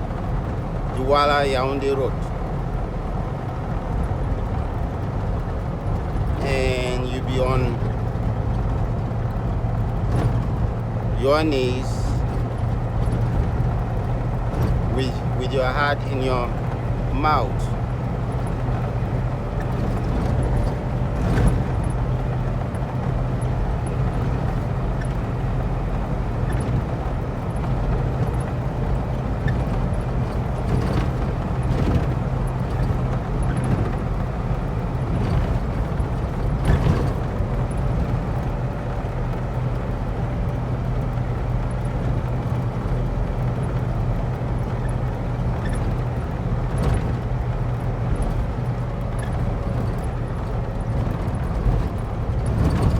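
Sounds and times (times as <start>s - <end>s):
car engine hum: 0.0s - 52.9s
tyre and road noise: 0.0s - 52.9s.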